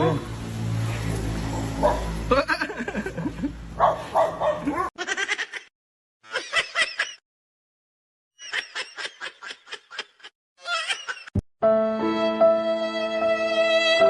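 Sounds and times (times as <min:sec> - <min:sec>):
rapid giggling laughter: 0:02.3 - 0:03.6, 0:04.6 - 0:05.7, 0:06.3 - 0:07.2, 0:08.4 - 0:11.3.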